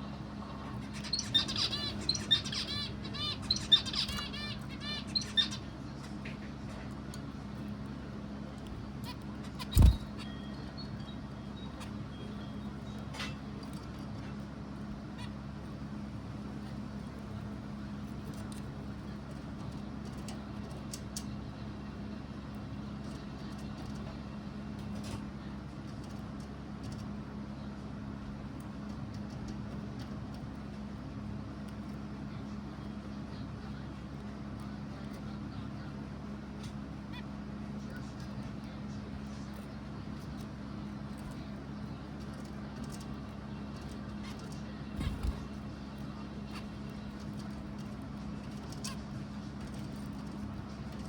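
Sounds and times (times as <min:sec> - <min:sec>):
steady low hum: 0:00.0 - 0:51.0
bird chirping rapidly: 0:00.9 - 0:05.7, 0:09.5 - 0:10.4.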